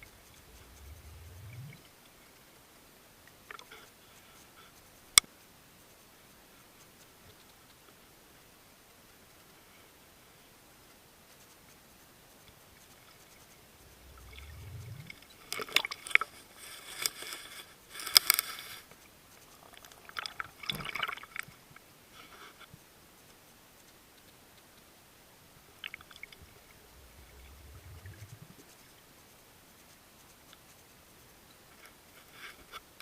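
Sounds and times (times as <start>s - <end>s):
low rising rumble: 0.0s - 1.9s, 13.8s - 15.4s, 26.4s - 28.6s
water clicks and splashy crackling: 13.0s - 17.4s, 19.5s - 21.8s, 25.8s - 28.7s.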